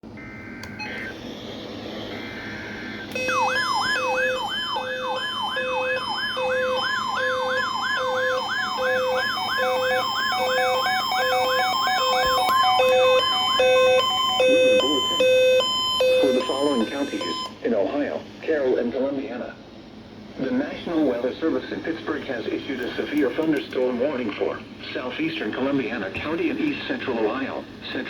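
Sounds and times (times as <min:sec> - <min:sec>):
siren-like sweeping tone: 0:00.2 - 0:17.5
steady electronic tone: 0:00.2 - 0:17.5
short low beeps: 0:11.2 - 0:17.5.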